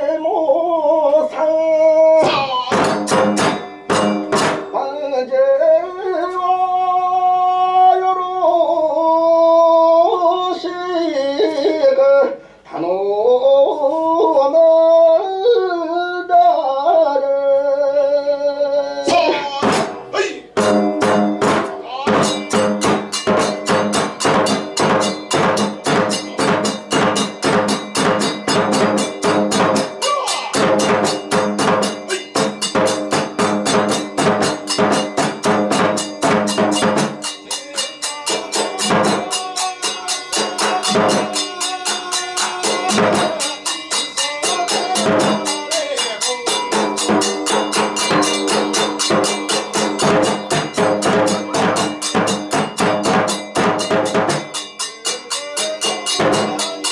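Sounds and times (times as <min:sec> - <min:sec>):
drums and percussion: 0:01.1 - 0:05.3, 0:19.0 - 0:56.9.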